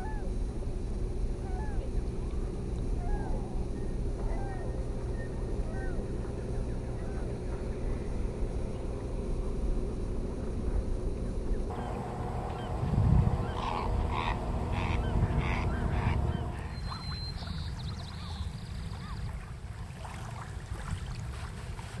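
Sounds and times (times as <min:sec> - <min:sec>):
steady low rumble: 0:00.0 - 0:18.8
bird calling: 0:11.7 - 0:19.2.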